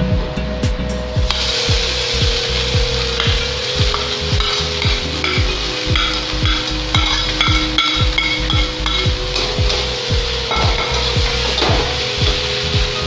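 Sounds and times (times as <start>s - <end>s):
background music with steady beat: 0.0s - 13.0s
food sizzling in a pan: 1.3s - 13.0s.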